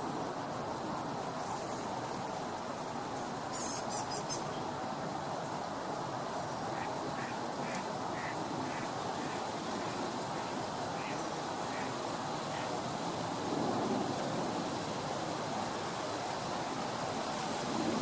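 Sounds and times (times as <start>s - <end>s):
steady rushing background noise: 0.0s - 18.0s
birds calling: 6.4s - 12.8s.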